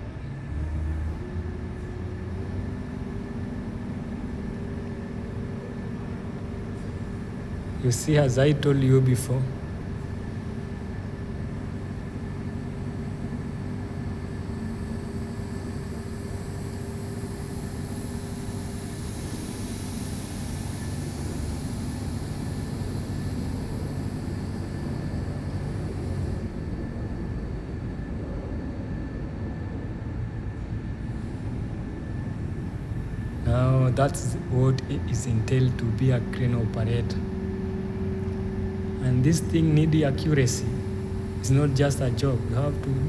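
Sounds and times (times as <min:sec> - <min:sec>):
high hiss: 0:16.0 - 0:26.2
diesel engine running: 0:33.4 - 0:43.0.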